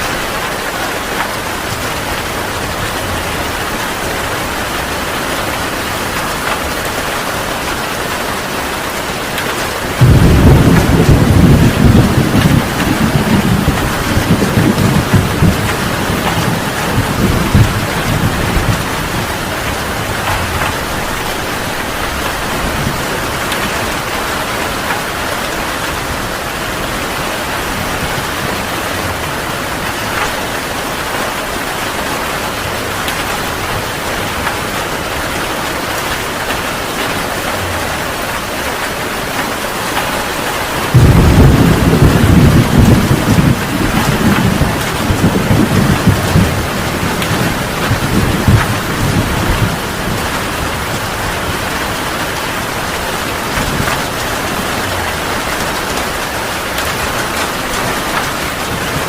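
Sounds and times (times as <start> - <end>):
heavy rain falling: 0.0 - 59.0
thunder rolling: 9.7 - 32.0, 40.7 - 59.0.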